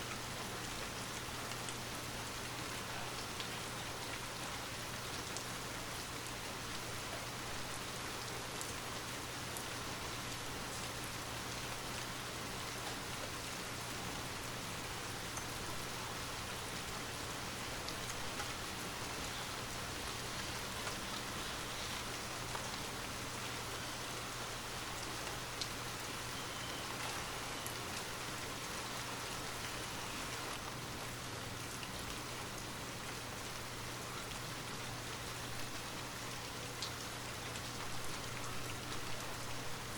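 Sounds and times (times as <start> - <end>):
raindrops pattering: 0.0 - 39.9
steady rain falling: 0.0 - 39.9.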